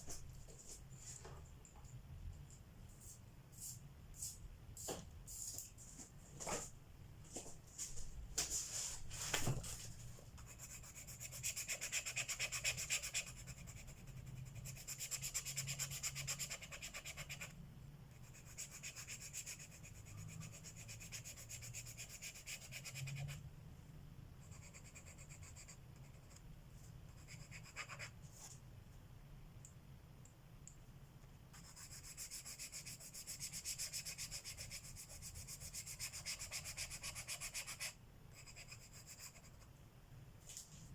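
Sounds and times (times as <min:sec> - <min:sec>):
pencil scratching on paper: 0:10.4 - 0:23.4, 0:24.4 - 0:26.4, 0:27.1 - 0:28.2, 0:31.5 - 0:39.7.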